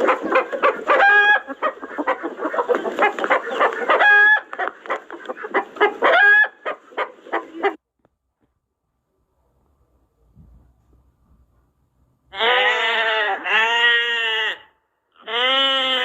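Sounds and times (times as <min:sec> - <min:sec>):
chicken squawking: 0:00.0 - 0:07.8, 0:12.3 - 0:16.0
chickens clucking: 0:00.0 - 0:07.8.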